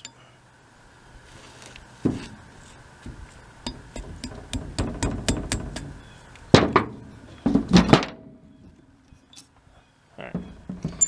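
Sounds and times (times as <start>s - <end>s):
metal-on-metal tapping: 3.1s - 6.0s.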